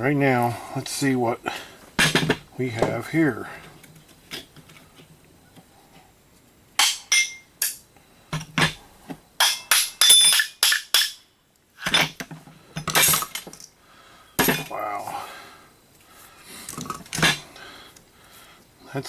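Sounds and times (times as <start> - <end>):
metal parts knocking and clanking: 2.0 - 2.4, 14.4 - 14.8.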